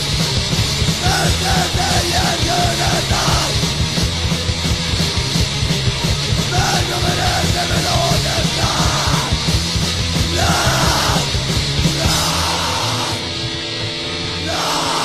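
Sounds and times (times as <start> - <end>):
fast hardcore punk band: 0.0 - 15.0
shouted vocals: 1.0 - 3.6, 6.5 - 9.4, 10.2 - 13.3, 14.4 - 15.0.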